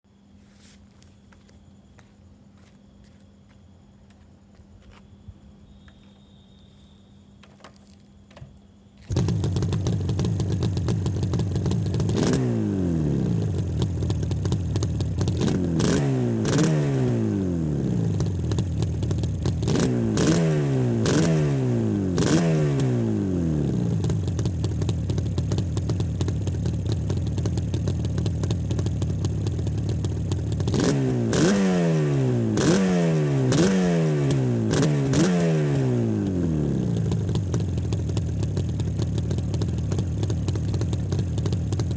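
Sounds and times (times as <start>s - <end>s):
motorcycle engine idling: 9.0s - 20.3s, 20.9s - 32.6s, 33.6s - 41.9s
throttle revs: 9.1s - 24.4s, 30.5s - 39.1s.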